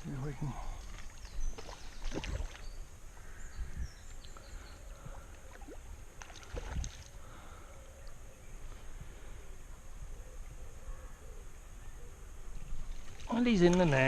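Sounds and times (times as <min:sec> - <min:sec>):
water splashing and sloshing: 0:00.0 - 0:03.3, 0:04.1 - 0:07.5, 0:12.5 - 0:14.0.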